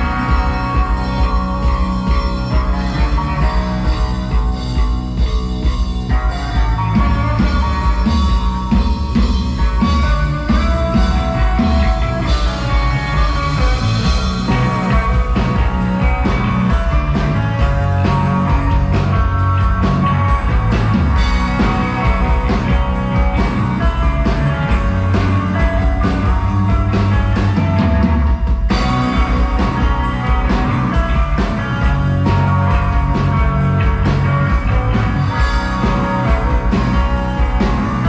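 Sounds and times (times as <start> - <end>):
drums beating: 0.0 - 38.0
guitar: 0.0 - 38.0
psychedelic rock band playing: 0.0 - 38.0.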